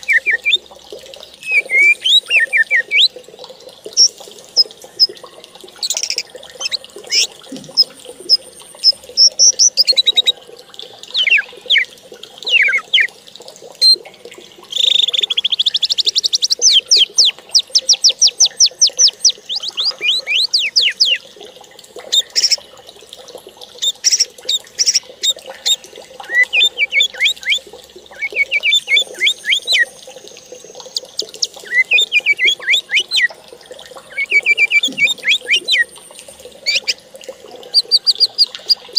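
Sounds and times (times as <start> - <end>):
fast bird trill: 0.0 - 0.6, 1.4 - 3.1, 5.8 - 10.3, 11.2 - 11.8, 12.5 - 13.1, 14.7 - 21.2, 22.2 - 22.6, 23.8 - 29.8, 30.9 - 33.3, 34.1 - 35.9, 36.6 - 37.0, 37.8 - 38.8
songbird singing: 0.0 - 0.6, 1.4 - 3.1, 5.8 - 10.4, 11.1 - 13.1, 14.7 - 21.2, 23.8 - 29.9, 30.7 - 33.3, 34.0 - 35.9, 36.6 - 37.0, 37.7 - 38.9.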